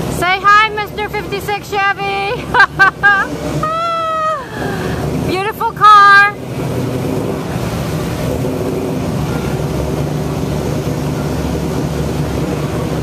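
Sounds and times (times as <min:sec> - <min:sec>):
car engine running low: 0:00.0 - 0:13.0.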